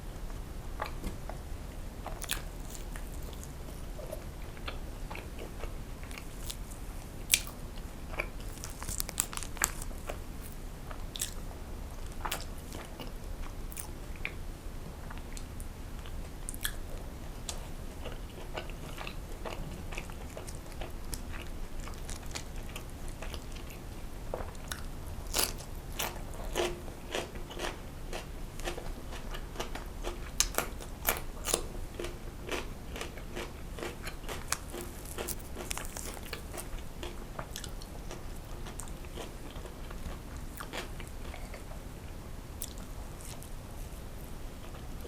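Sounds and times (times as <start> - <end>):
chewing: 2.0 - 14.4, 17.5 - 41.8, 42.6 - 43.5
sharp crunchy clicks: 29.6 - 37.8.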